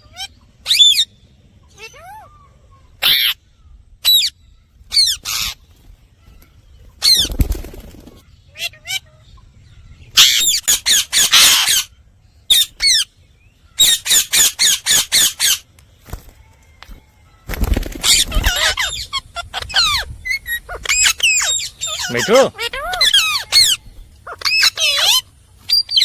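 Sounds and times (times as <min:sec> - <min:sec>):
parakeet screeching: 0:03.0 - 0:03.4, 0:04.0 - 0:04.3, 0:04.9 - 0:05.6, 0:10.2 - 0:11.9, 0:12.5 - 0:13.1, 0:13.8 - 0:15.6, 0:18.0 - 0:26.0.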